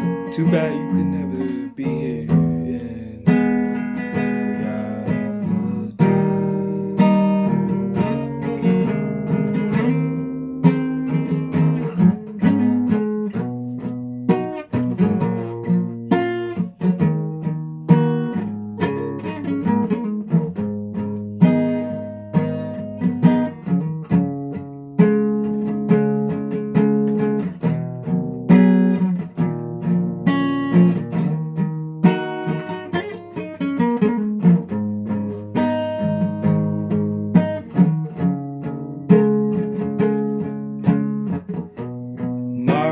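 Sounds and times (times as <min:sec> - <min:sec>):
guitar playing chords and notes: 0:00.0 - 0:42.9.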